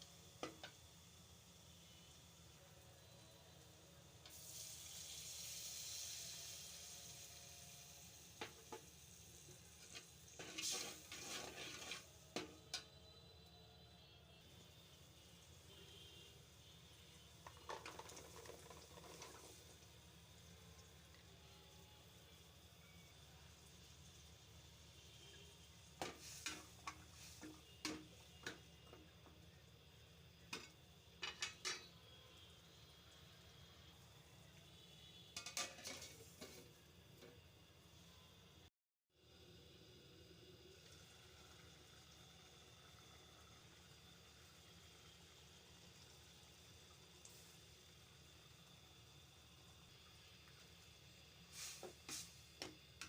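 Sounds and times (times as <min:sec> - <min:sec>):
stirring and scraping in pot: 0:09.5 - 0:12.9, 0:17.4 - 0:19.6, 0:26.0 - 0:28.6, 0:35.4 - 0:36.8
utensil clinking against pot: 0:30.5 - 0:32.0.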